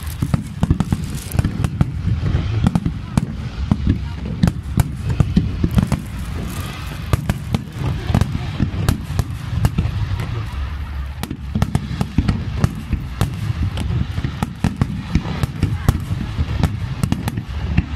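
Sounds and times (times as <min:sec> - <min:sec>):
continuous low rumble: 0:00.0 - 0:17.9
fireworks bangs and crackles: 0:00.0 - 0:17.9.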